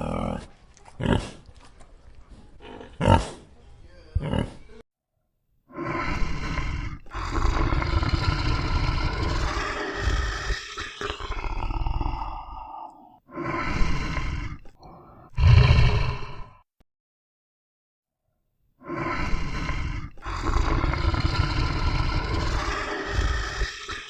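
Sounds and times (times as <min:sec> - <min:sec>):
animal roaring: 0:00.0 - 0:01.3, 0:05.8 - 0:16.6, 0:18.8 - 0:24.0.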